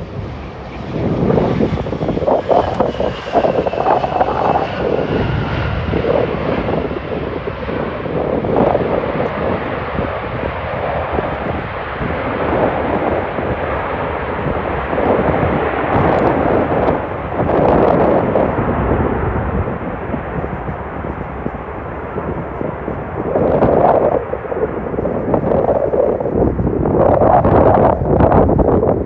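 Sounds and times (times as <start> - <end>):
faint engine whine falling in pitch: 0.0 - 7.0
jet engine roar: 0.0 - 29.0.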